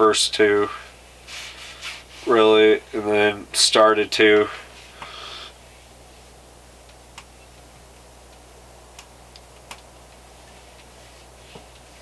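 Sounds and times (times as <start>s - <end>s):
low steady hum: 0.0s - 12.0s
wood stove ticking and crackling: 6.8s - 10.3s.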